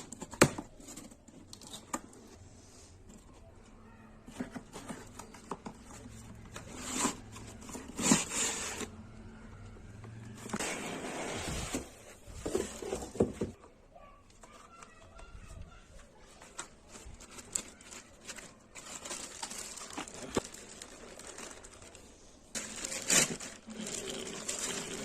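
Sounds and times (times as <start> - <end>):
packaging rustling: 16.2 - 25.0.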